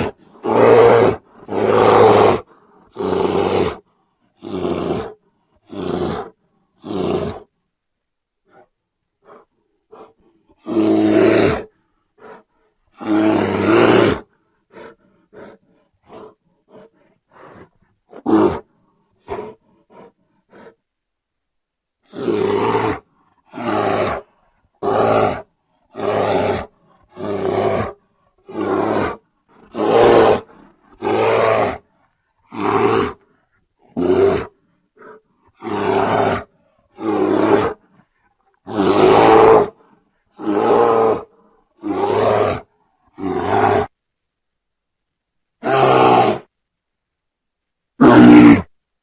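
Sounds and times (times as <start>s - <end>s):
bear roaring: 0.0s - 7.5s, 8.5s - 20.8s, 22.0s - 43.9s, 45.6s - 46.5s, 48.0s - 48.7s
bear grunts and huffs: 14.0s - 20.8s, 32.4s - 43.4s.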